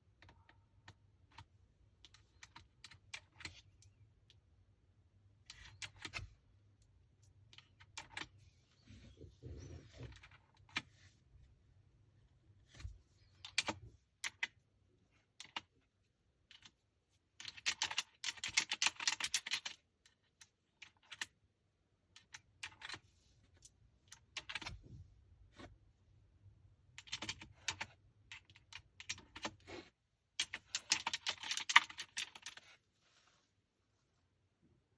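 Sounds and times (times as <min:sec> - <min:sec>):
mechanical keyboard typing: 0:17.4 - 0:19.8, 0:27.0 - 0:29.6, 0:30.4 - 0:32.6.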